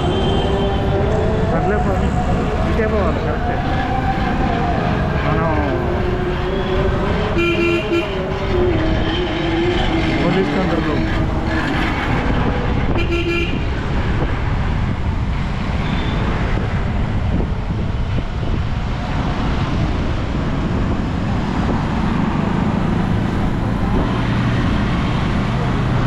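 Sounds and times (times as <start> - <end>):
road traffic noise: 0.0 - 26.0
vehicle horn toot: 6.6 - 8.4, 12.8 - 13.8.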